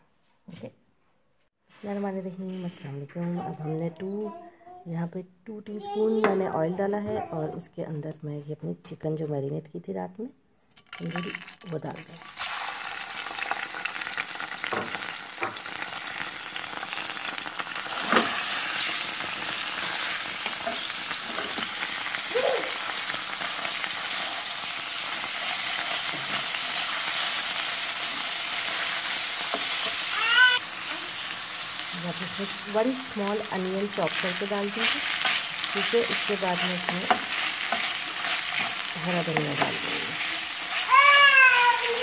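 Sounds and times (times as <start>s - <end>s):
chicken sizzling in frying pan: 10.9s - 42.0s
wooden spatula stirring: 33.2s - 42.0s.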